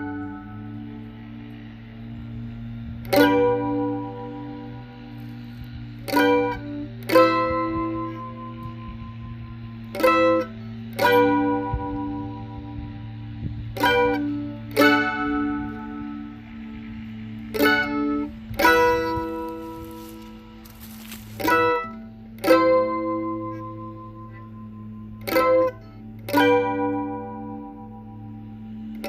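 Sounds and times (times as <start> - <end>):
mandolin strummed chords: 0.0 - 29.0
steady low hum: 0.0 - 29.0.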